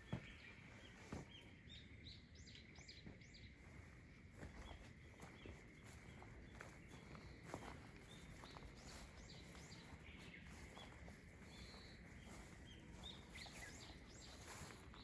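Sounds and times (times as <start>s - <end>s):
faint bird chirps: 4.6s - 15.0s.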